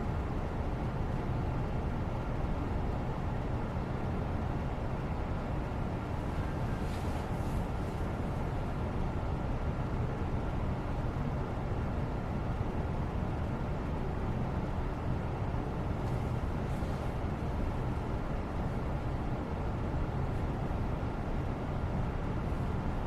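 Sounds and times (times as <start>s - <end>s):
low rumbling background noise: 0.0s - 23.0s
faint soft rustles: 6.0s - 8.8s, 15.9s - 19.0s.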